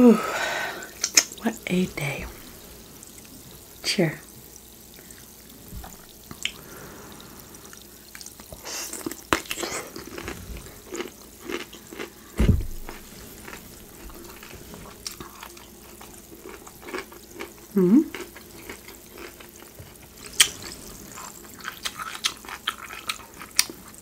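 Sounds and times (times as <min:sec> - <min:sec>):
wet chewing: 0:07.7 - 0:24.0
cucumber crunching: 0:08.9 - 0:24.0
low thump: 0:12.4 - 0:13.0.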